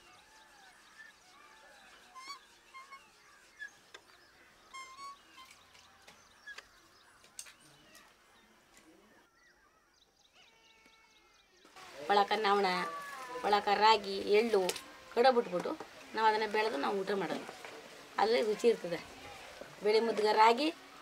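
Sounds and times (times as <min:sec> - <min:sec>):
bird chirps and trills: 0:00.0 - 0:08.0.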